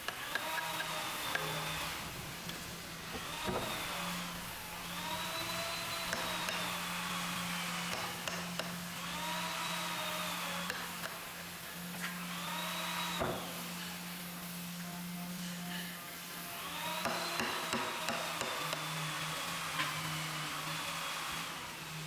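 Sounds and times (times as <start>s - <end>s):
power tool motor whining: 0.0s - 22.0s
low machine hum: 1.2s - 7.8s.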